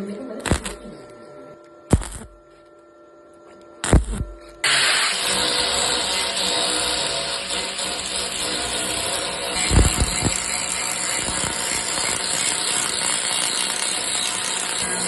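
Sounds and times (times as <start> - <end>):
power tool running: 1.9 - 2.4, 3.8 - 15.0.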